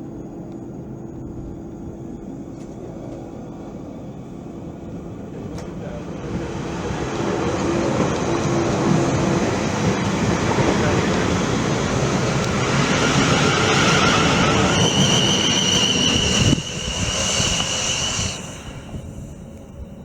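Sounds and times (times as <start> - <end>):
train rumbling past: 0.0 - 20.0
high steady squeal: 10.8 - 20.0.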